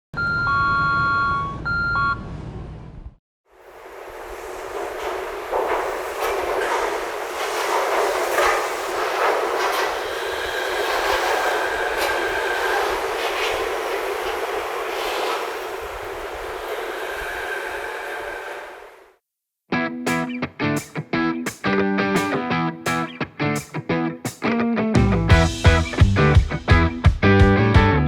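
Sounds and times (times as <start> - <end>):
train wheels clicking over rail joints: 3.6 - 19.1.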